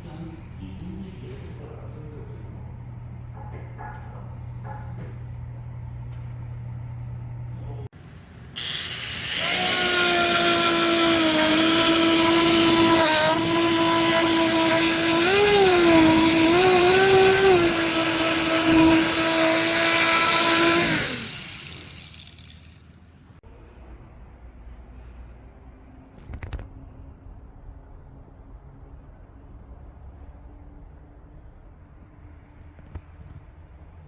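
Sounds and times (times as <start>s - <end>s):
power tool whining and grinding wood: 8.6s - 22.8s.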